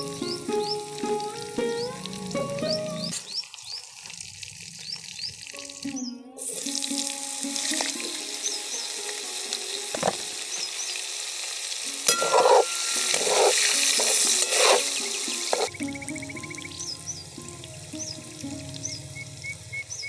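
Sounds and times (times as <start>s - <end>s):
potatoes sizzling in hot oil: 0.0s - 5.8s, 6.4s - 20.0s
metal spatula scraping a pan: 12.1s - 15.7s.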